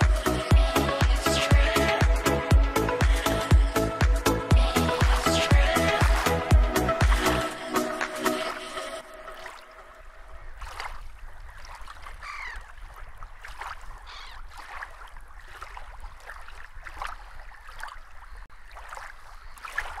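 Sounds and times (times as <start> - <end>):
birds calling: 10.0 - 15.6.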